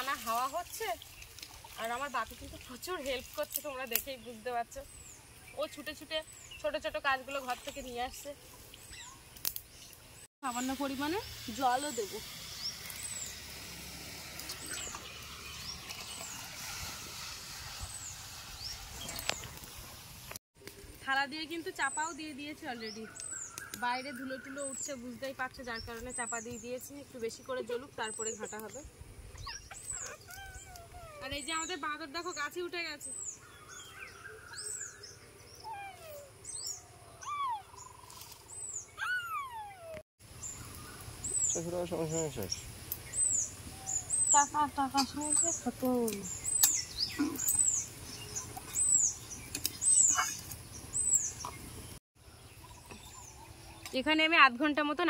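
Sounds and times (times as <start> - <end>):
bird chirping: 3.8 - 10.3, 14.4 - 16.5, 21.8 - 54.2
outdoor hiss: 9.4 - 20.4, 40.2 - 48.4.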